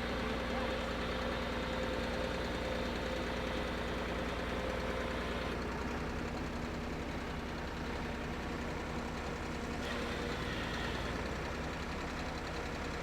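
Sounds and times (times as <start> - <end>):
drill rig engine droning: 9.8 - 11.2.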